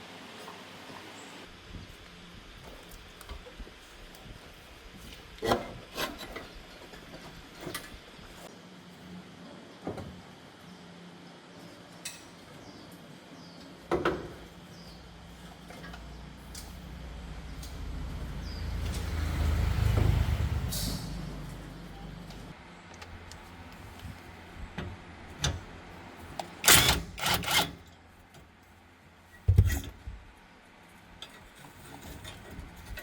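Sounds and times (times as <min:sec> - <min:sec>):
low rumble: 0:16.2 - 0:22.6.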